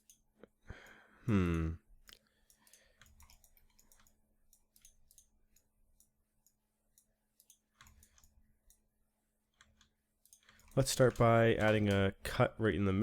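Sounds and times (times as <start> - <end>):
computer mouse and keyboard clicks: 2.0 - 8.8, 9.6 - 12.1.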